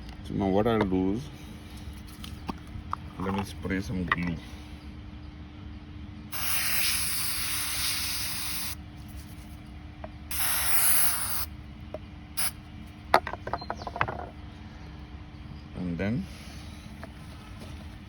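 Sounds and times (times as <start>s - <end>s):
aerosol can hissing: 6.3s - 8.8s, 10.3s - 11.5s.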